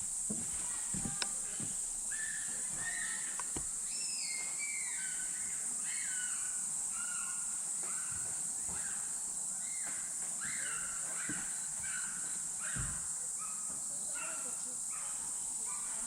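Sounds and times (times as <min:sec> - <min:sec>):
high-pitched insect drone: 0:00.0 - 0:16.0
short high whistling calls: 0:02.2 - 0:06.5.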